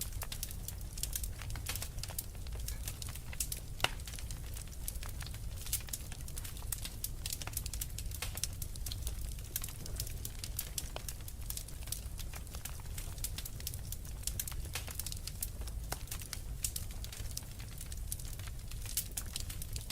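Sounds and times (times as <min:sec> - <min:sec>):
low rumble of flames: 0:00.0 - 0:19.9
wood fire crackling: 0:00.0 - 0:19.9.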